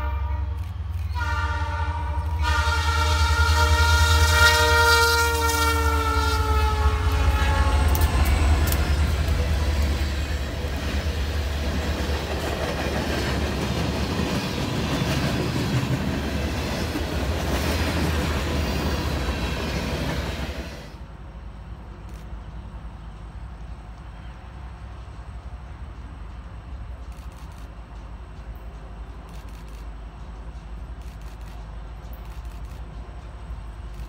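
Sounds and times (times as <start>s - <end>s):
train horn chord: 0.0s - 9.9s
train rumble and wheel noise: 0.0s - 34.0s.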